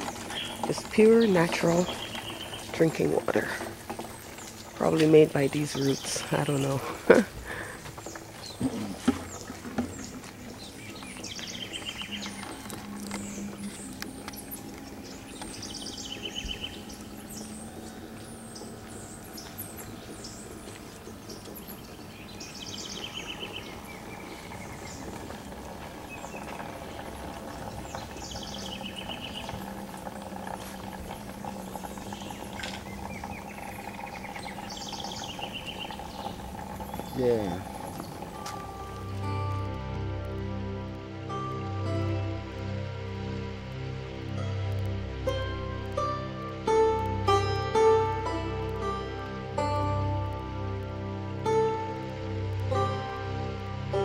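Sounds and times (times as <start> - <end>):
forest birds calling: 0.0 - 54.0
steady background noise: 0.0 - 54.0.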